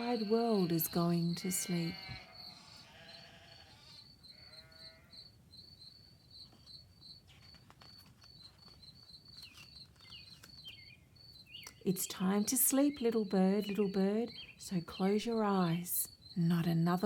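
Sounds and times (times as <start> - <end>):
sheep bleating: 0.0 - 5.1
faint high chirping: 0.0 - 17.0.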